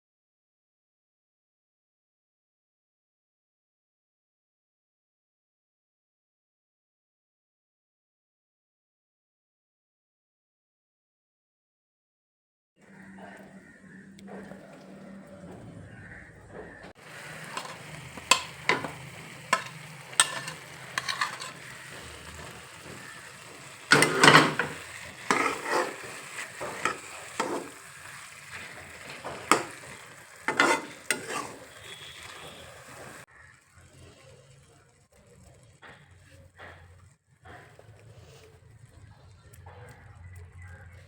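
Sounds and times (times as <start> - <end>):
spatula scraping a pan: 17.0 - 34.7, 35.4 - 38.7
food sizzling in a frying pan: 17.0 - 36.4.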